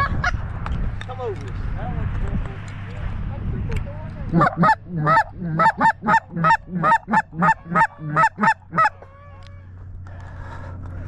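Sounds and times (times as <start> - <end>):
goose call honks: 4.3 - 9.1.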